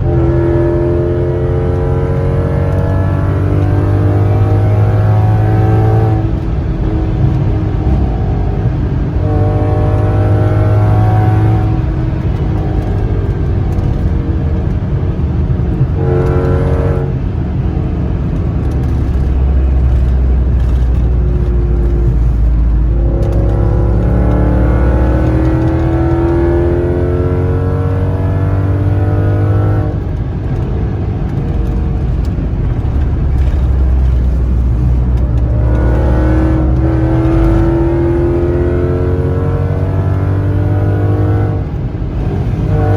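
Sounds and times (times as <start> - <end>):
car engine revving hard: 0.0 - 30.6, 31.2 - 42.9.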